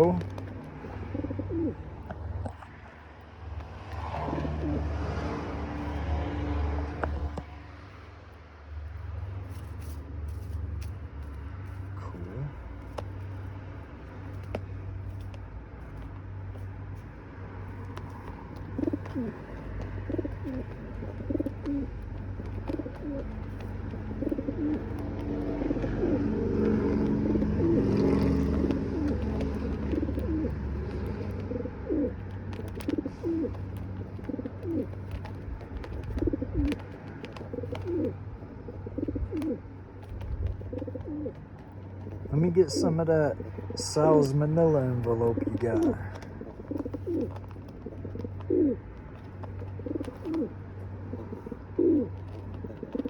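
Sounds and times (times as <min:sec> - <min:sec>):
birds cooing: 0:00.0 - 0:03.0, 0:03.6 - 0:06.1, 0:17.6 - 0:53.0.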